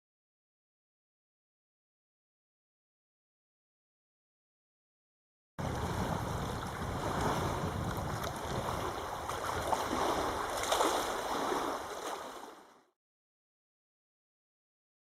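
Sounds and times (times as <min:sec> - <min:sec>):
wind buffeting microphone: 0:05.6 - 0:12.0
rushing water: 0:05.6 - 0:12.9.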